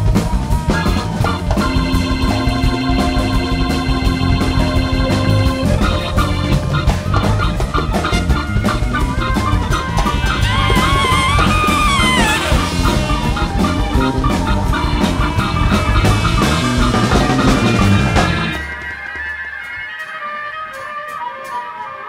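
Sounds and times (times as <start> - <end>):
bass: 0.0 - 19.2
wavering lead line: 0.0 - 19.8
big band playing: 0.0 - 22.0
drum kit: 0.0 - 22.0.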